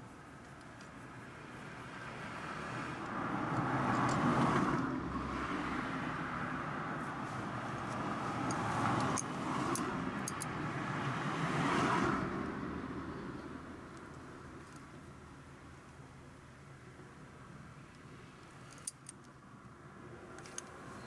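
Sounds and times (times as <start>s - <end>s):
cars going by: 0.9s - 15.8s.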